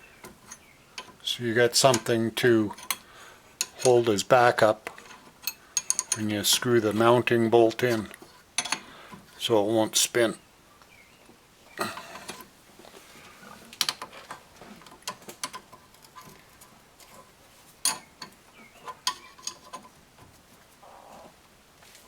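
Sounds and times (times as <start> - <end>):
tools and metal parts clinking: 1.8 - 7.1, 7.8 - 8.9, 13.8 - 20.0.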